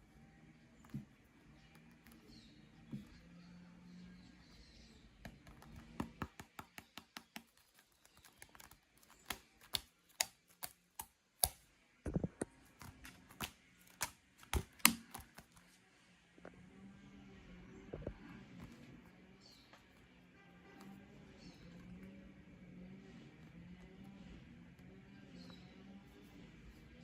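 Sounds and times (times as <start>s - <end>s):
fingers tapping on football: 5.2s - 15.6s.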